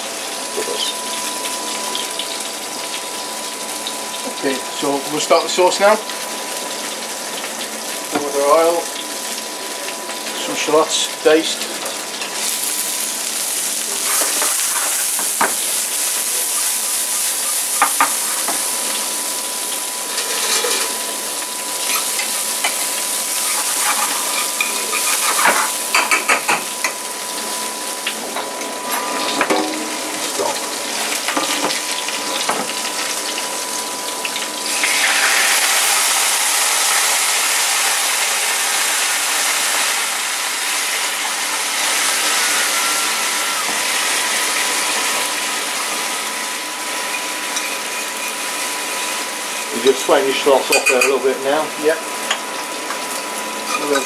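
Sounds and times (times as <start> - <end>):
shallots sizzling in oil: 0.0 - 54.0
pan steaming hiss: 12.4 - 26.6, 34.6 - 50.5
spoon scraping a pan: 23.4 - 26.4, 47.1 - 48.5.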